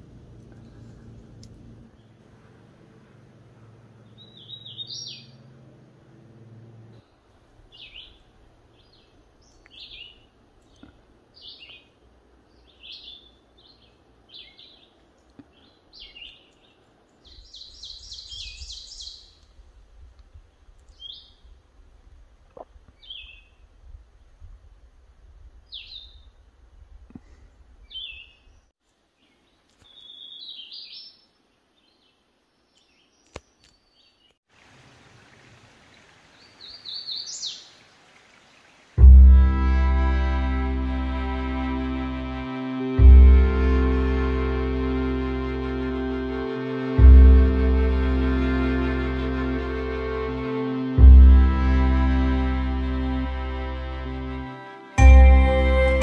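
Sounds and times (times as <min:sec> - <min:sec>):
songbird singing: 0:00.1 - 0:21.6, 0:22.5 - 0:24.5, 0:25.6 - 0:26.6, 0:27.8 - 0:34.4, 0:35.8 - 0:39.4.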